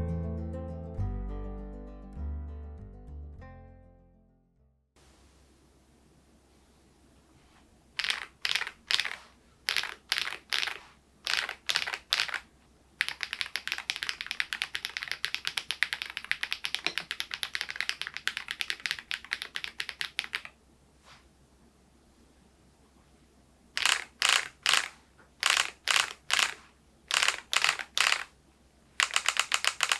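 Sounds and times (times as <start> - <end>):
mechanical keyboard keystrokes: 8.0 - 12.4, 13.0 - 20.6, 23.8 - 28.4, 29.0 - 29.9
fast typing on mechanical keyboard: 8.0 - 20.6, 23.8 - 28.4, 29.0 - 29.9.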